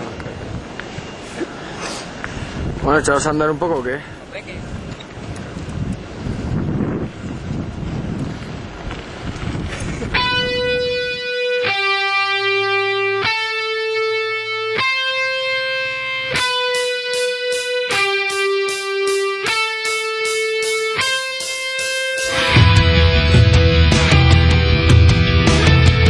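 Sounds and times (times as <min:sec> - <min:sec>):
electric guitar held notes: 0:10.0 - 0:26.0
pulsing high rhythm: 0:15.5 - 0:26.0
heavy rock band: 0:16.1 - 0:26.0.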